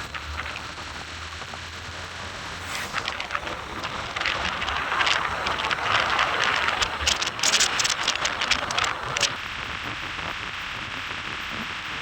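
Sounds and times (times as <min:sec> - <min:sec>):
sharp crackles: 0:00.0 - 0:01.4, 0:02.4 - 0:09.4.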